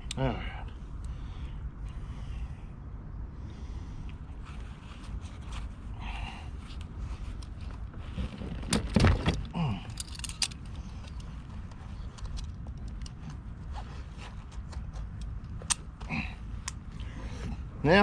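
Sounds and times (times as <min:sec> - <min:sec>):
steady low rumble: 0:00.0 - 0:18.0
fishing gear clicking and jingling: 0:08.5 - 0:13.4.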